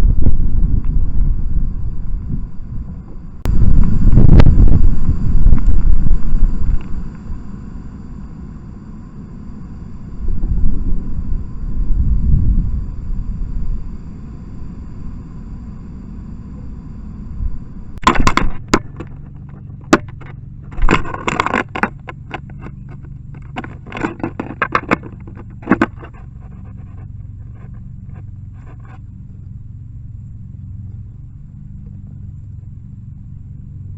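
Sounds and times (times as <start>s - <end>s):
low steady rumble: 0.0s - 33.9s
woodpecker pecking on plastic: 18.0s - 29.0s.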